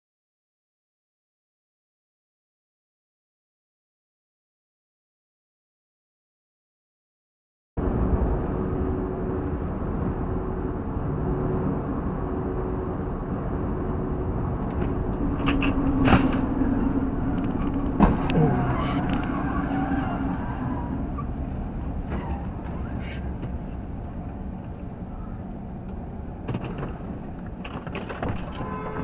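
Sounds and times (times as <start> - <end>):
car engine and road rumble: 7.8 - 29.0.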